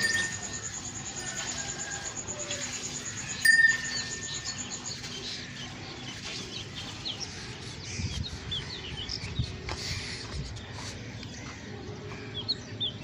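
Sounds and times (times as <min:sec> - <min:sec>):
sharp ringing clink: 0:00.0 - 0:00.9, 0:03.3 - 0:04.7
small birds chirping: 0:00.0 - 0:13.0.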